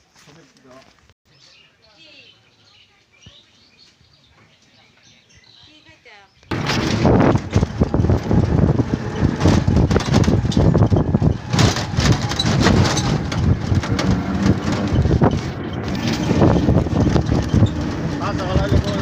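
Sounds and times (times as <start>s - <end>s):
rattles and knocks: 6.5s - 19.0s
vehicle engine rumbling: 6.5s - 19.0s.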